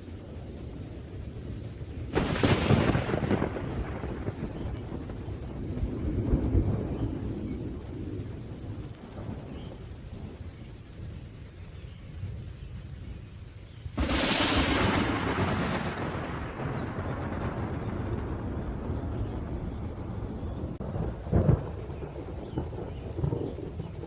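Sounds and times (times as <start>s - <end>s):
low rolling thunder: 0.0s - 24.0s
steady rain: 0.0s - 24.0s
loud thunder crack: 2.1s - 9.6s, 14.0s - 24.0s.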